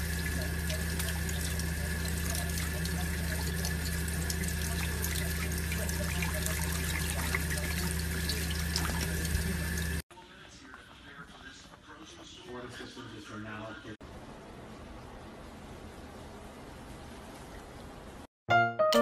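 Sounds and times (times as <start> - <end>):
tap water splashing into sink: 0.0 - 10.0.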